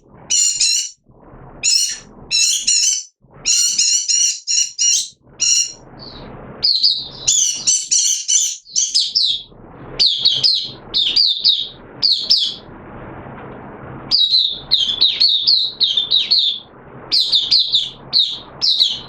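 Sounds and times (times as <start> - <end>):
bird twittering song: 0.3 - 1.0, 1.6 - 12.6, 14.1 - 19.0
low rushing noise: 1.0 - 2.4, 5.1 - 7.3, 9.1 - 19.0.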